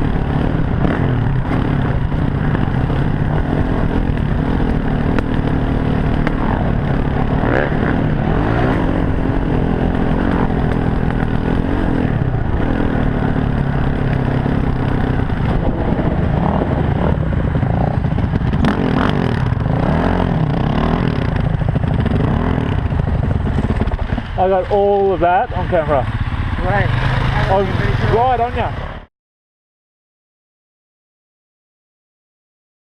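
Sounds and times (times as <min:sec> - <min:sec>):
bike rattling over rough ground: 0:00.0 - 0:28.9
dirt bike engine revving: 0:00.0 - 0:29.1.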